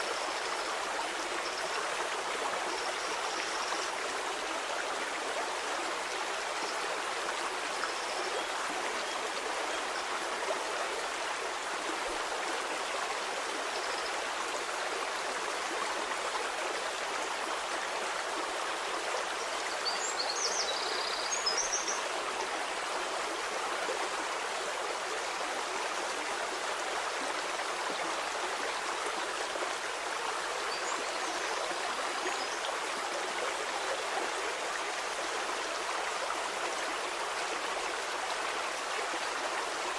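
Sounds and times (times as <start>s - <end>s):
stream rushing and babbling: 0.0s - 39.9s.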